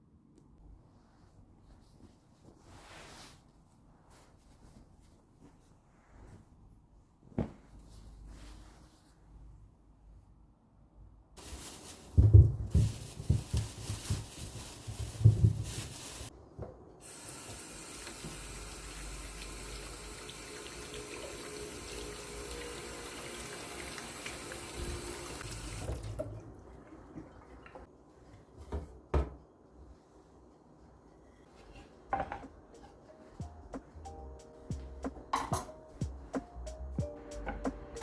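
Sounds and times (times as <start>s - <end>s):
tap water running into sink: 17.1s - 27.9s.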